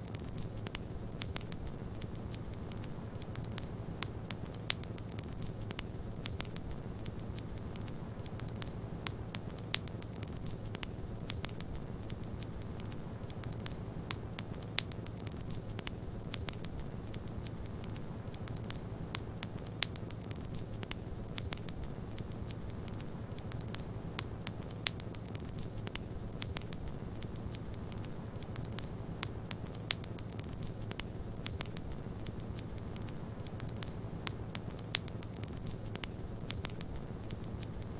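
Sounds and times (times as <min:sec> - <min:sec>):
low rumble of wind and flames: 0:00.0 - 0:37.9
wood fire crackling: 0:00.0 - 0:37.9.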